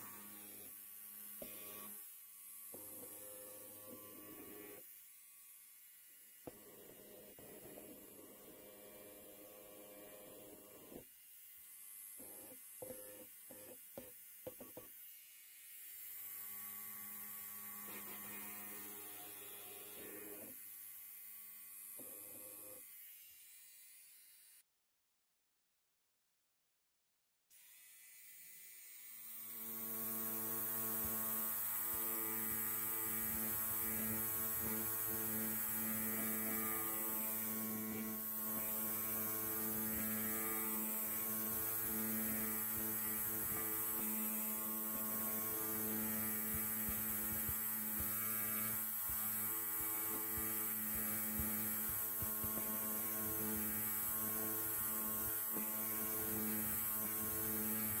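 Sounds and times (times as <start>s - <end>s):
electric hair clipper buzzing: 0.0s - 24.6s, 27.5s - 58.0s.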